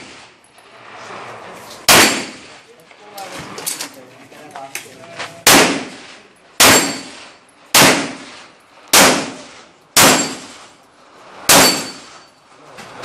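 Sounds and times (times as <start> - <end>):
pistol shots: 1.9 - 2.5, 5.4 - 6.0, 6.6 - 10.6, 11.5 - 12.1.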